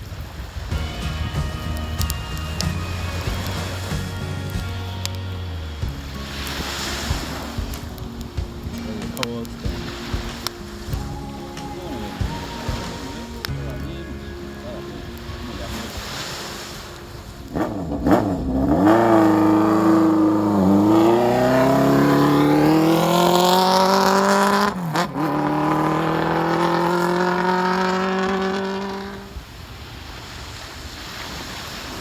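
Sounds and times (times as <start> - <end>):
surf: 0.0 - 32.0
wind: 0.0 - 32.0
motorcycle engine accelerating: 0.4 - 11.3, 17.1 - 29.4.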